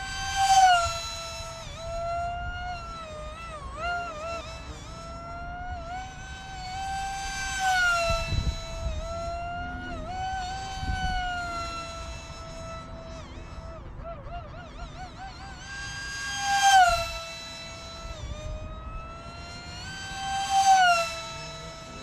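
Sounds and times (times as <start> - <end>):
model jet motor whining: 0.0 - 22.0
wind rumbling on microphone: 5.0 - 13.9.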